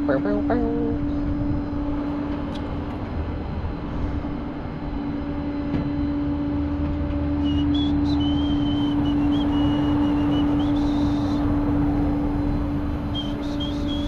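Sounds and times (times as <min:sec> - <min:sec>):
truck engine humming: 0:00.0 - 0:14.0
high wavering squeal: 0:03.6 - 0:14.0.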